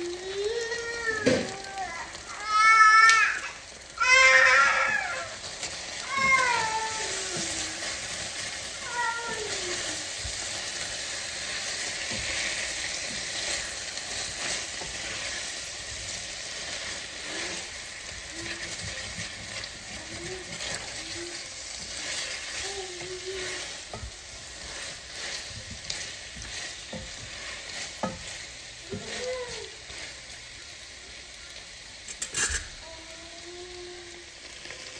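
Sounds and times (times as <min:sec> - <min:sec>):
food sizzling in a pan: 0:00.0 - 0:34.9
spatula scraping a pan: 0:04.0 - 0:30.3, 0:32.1 - 0:32.8.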